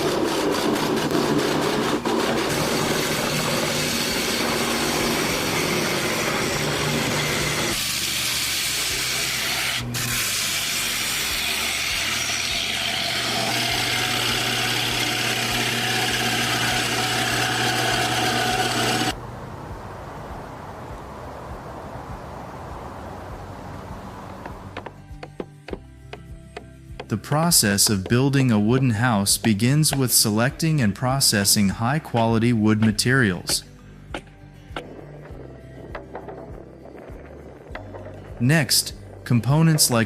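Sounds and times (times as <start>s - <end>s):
woodworking machinery humming: 0.0s - 20.0s.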